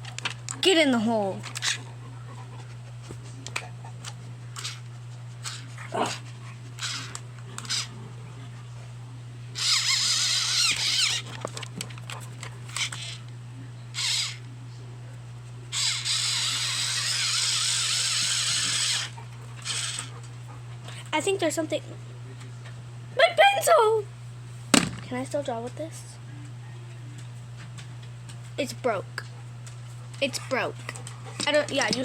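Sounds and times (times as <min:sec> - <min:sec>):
pencil sharpener grinding: 0:06.8 - 0:07.9, 0:09.6 - 0:11.4, 0:15.8 - 0:20.1.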